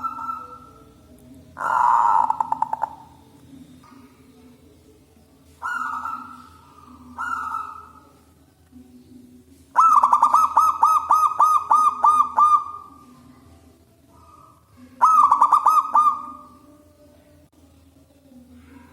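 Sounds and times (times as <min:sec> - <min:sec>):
dove cooing: 0:00.0 - 0:01.0, 0:01.6 - 0:04.4, 0:05.5 - 0:08.3, 0:09.7 - 0:13.3, 0:14.1 - 0:16.6.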